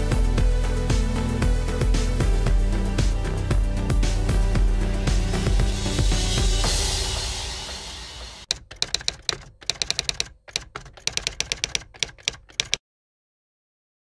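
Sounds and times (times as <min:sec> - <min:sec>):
music: 0:00.0 - 0:09.0
rapid sharp clicks: 0:08.5 - 0:12.8.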